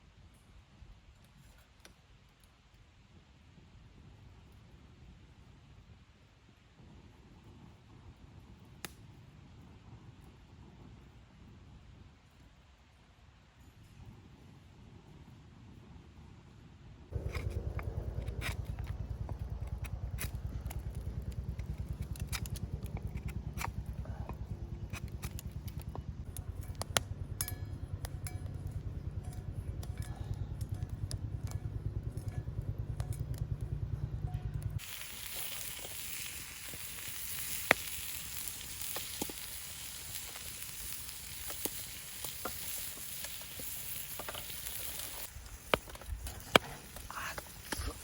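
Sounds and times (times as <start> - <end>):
fire crackles and pops: 0.8 - 16.0, 17.1 - 48.0
food sizzling over campfire: 17.1 - 31.6, 34.6 - 48.0
low rumble: 17.1 - 48.0.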